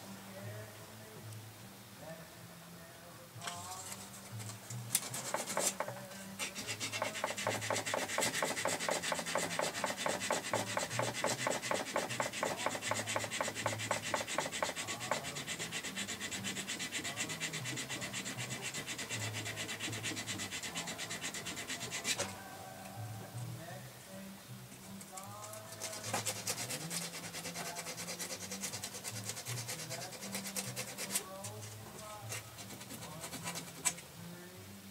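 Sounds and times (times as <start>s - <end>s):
hand sanding strokes: 5.0s - 22.4s, 25.3s - 34.0s.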